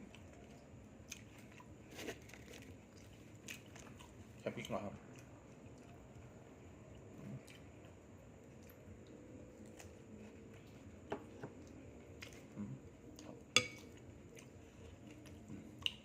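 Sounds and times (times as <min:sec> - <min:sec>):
low room noise: 0:00.0 - 0:16.0
dishes and cutlery clinking: 0:13.6 - 0:13.9.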